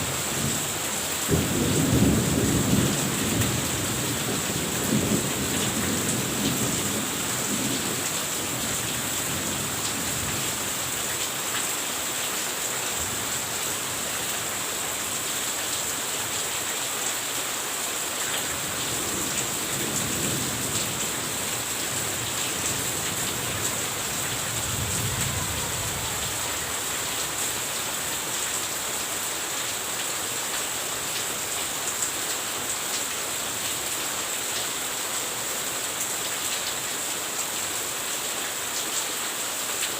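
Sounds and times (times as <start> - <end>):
steady rain falling: 0.0 - 39.9
thunder rumbles: 18.8 - 27.4.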